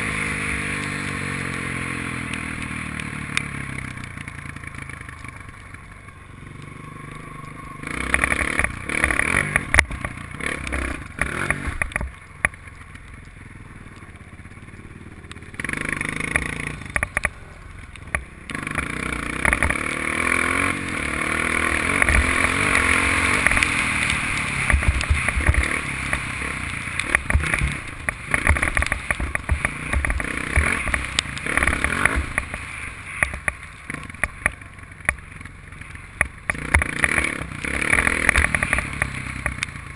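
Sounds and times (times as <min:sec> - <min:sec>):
dirt bike engine revving: 0:00.0 - 0:05.0, 0:06.2 - 0:12.0, 0:14.3 - 0:17.6, 0:18.4 - 0:34.4, 0:36.5 - 0:39.9.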